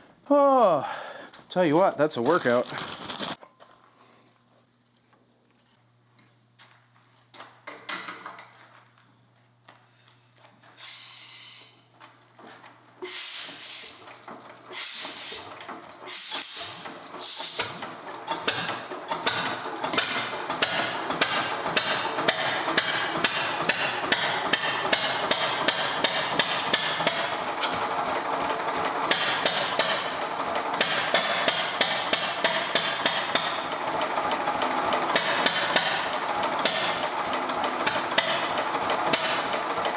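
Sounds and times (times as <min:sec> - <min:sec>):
diesel engine firing: 0:13.2 - 0:39.9.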